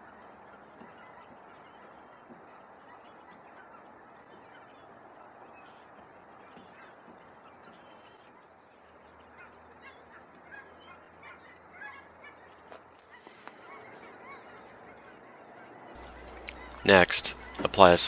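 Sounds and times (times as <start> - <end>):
chirping bird calls: 0.0 - 18.0
low steady hiss: 16.0 - 18.0.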